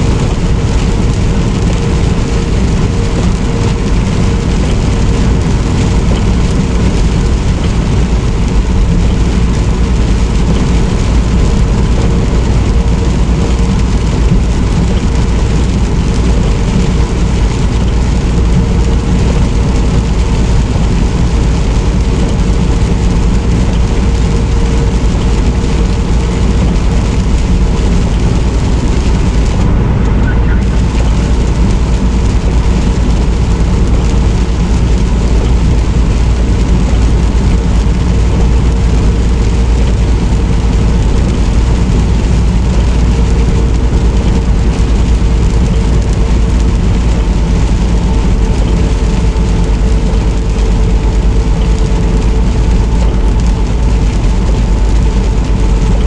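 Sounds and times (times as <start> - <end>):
tyres hissing on wet road: 0.0 - 29.6, 30.6 - 56.0
rain on the road: 0.0 - 56.0
truck engine drone: 0.0 - 56.0.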